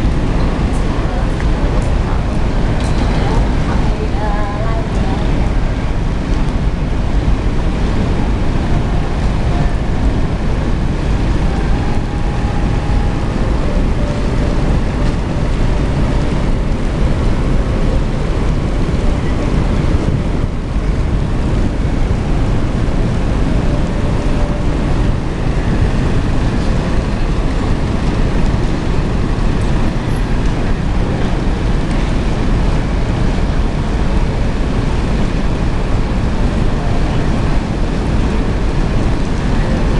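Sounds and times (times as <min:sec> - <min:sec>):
wind noise on microphone: 0:00.0 - 0:39.9.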